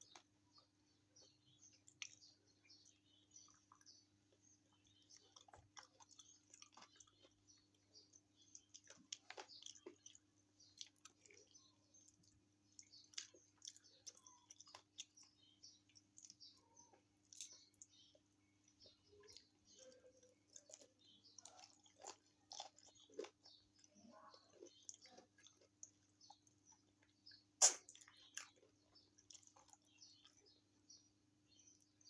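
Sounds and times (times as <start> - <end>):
wet chewing and crunching: 0.0 - 32.0.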